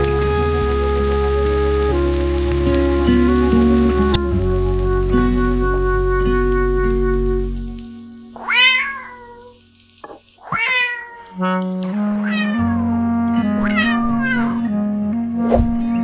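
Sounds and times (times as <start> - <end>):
background music: 0.0 - 8.4, 11.4 - 16.0
cat meowing: 8.4 - 12.9, 13.6 - 14.7.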